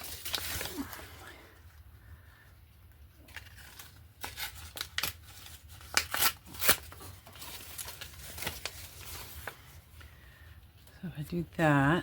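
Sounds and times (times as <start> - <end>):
magazine paper rustling: 0.0 - 1.6, 3.0 - 10.5.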